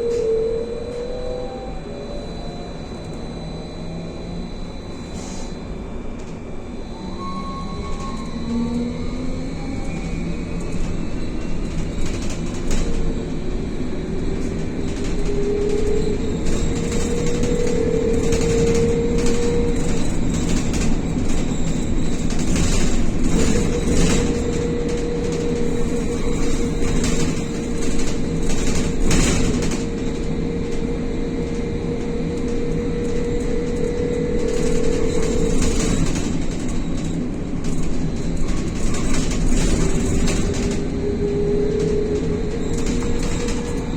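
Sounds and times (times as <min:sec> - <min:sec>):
road rumble: 0:08.0 - 0:43.9
bus body knocks and rattles: 0:10.5 - 0:43.9.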